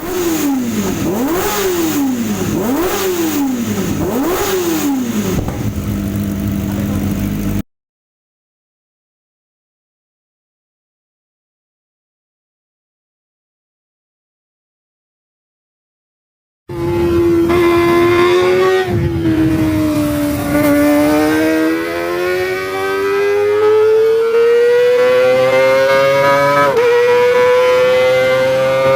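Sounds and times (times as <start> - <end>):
motorcycle engine revving: 0.0 - 7.6, 16.7 - 28.9.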